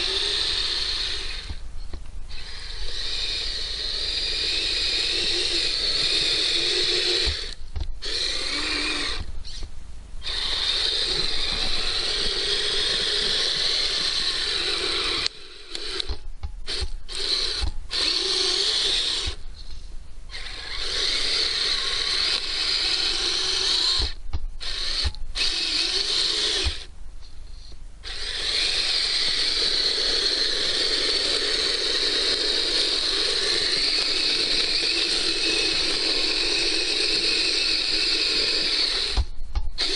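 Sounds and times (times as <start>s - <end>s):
toy electric motor whining: 0.0s - 1.6s, 2.3s - 19.7s, 20.3s - 26.9s, 28.0s - 39.9s.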